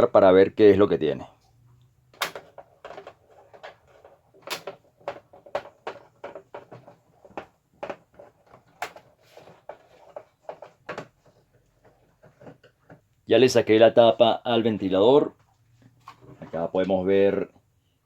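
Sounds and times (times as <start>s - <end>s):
plastic fan housing clicks and knocks: 2.2s - 3.8s.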